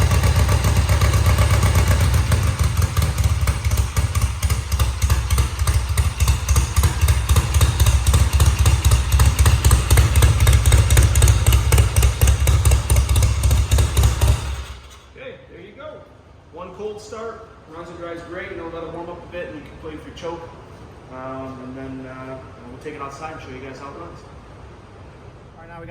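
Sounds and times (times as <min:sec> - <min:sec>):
motorcycle engine idling: 0:00.0 - 0:15.1.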